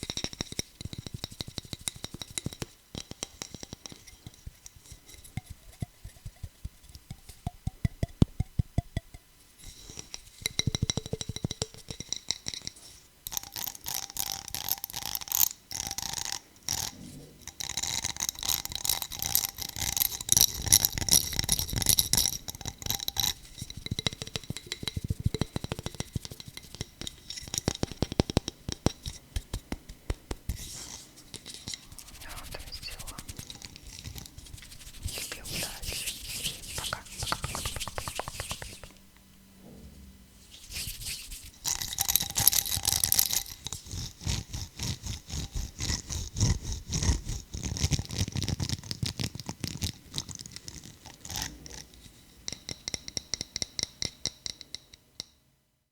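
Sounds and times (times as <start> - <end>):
bright scratching and rubbing: 30.5 - 39.0, 40.4 - 42.1
fast tapping on hard objects: 32.0 - 39.0.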